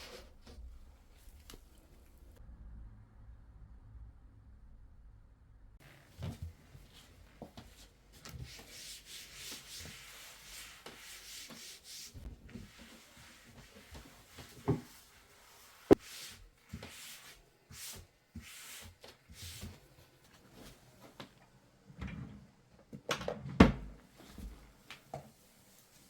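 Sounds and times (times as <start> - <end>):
wiping scraping strokes: 6.3 - 19.8.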